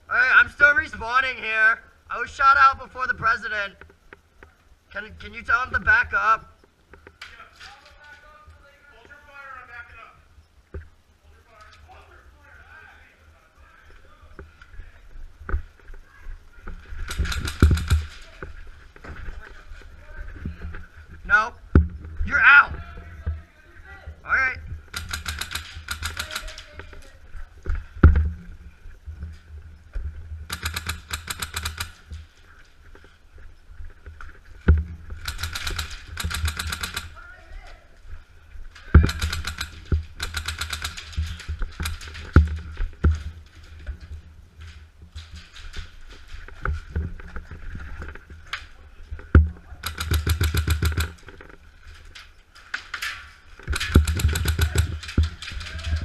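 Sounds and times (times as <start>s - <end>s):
airsoft rifles firing bursts: 17.0s - 18.3s, 24.9s - 26.8s, 30.5s - 32.2s, 35.1s - 37.2s, 39.0s - 42.7s, 49.8s - 51.3s, 53.7s - 55.7s
loud thumps: 17.0s - 18.3s, 53.6s - 56.0s
sharp crack: 17.0s - 18.6s, 24.8s - 27.1s, 30.5s - 32.3s, 35.1s - 37.2s, 38.8s - 43.3s, 49.4s - 51.5s, 52.1s - 56.0s.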